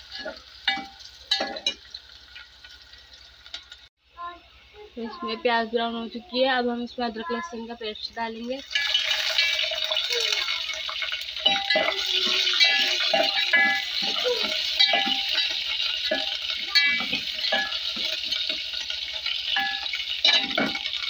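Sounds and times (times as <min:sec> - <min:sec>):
onions sizzling in oil: 0:00.0 - 0:03.9, 0:07.5 - 0:21.0
metal spoon scraping a pot: 0:10.9 - 0:21.0.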